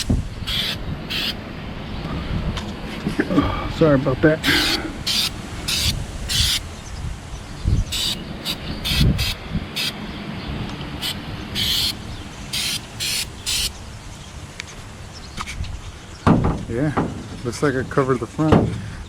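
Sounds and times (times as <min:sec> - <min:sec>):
aerosol can spraying: 0:00.0 - 0:01.4, 0:04.4 - 0:06.6, 0:07.9 - 0:09.9, 0:11.0 - 0:13.7.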